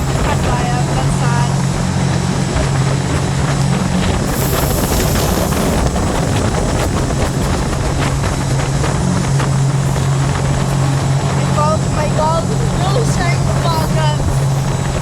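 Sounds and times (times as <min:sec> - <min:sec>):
jet boat engine droning: 0:00.0 - 0:15.0
wind buffeting microphone: 0:00.0 - 0:15.0
high hiss: 0:04.3 - 0:06.1.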